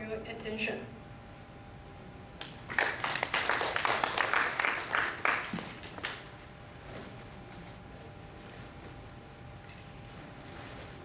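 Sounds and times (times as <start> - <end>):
audience applauding: 2.4 - 6.4.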